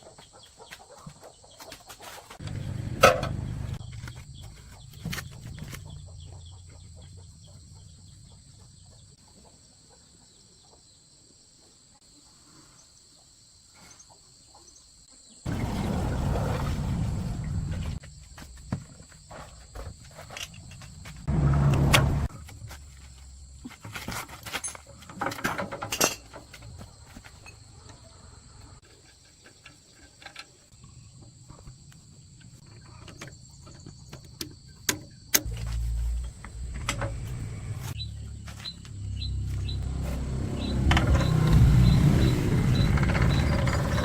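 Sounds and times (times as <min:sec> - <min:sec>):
diesel engine starting and running: 0:02.4 - 0:09.2, 0:15.5 - 0:18.0, 0:21.2 - 0:22.3, 0:35.4 - 0:44.0.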